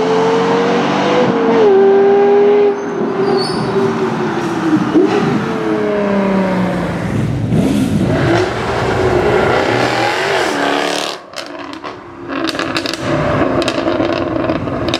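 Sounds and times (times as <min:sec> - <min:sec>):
sports car engines revving: 0:00.0 - 0:14.9
exhaust pops and crackles: 0:11.3 - 0:14.9.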